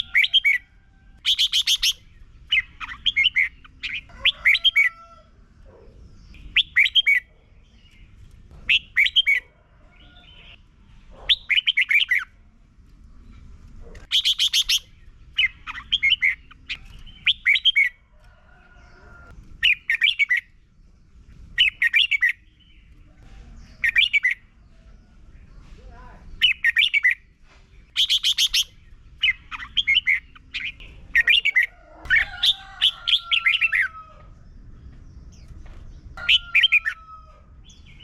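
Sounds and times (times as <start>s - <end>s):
bulbul singing warbled phrases: 0.0s - 4.9s, 5.8s - 8.0s, 14.0s - 17.9s, 23.6s - 24.6s, 25.8s - 27.2s, 27.9s - 33.9s.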